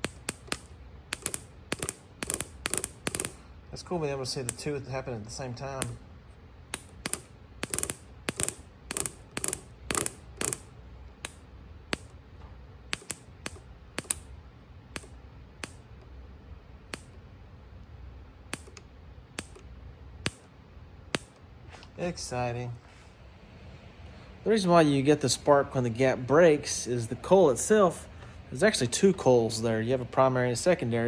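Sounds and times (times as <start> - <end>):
ignition spark snaps: 0.0 - 3.4, 5.7 - 6.0, 6.7 - 12.2, 12.9 - 14.3, 14.9 - 16.1, 16.9 - 17.2, 18.5 - 20.5, 21.2 - 21.4.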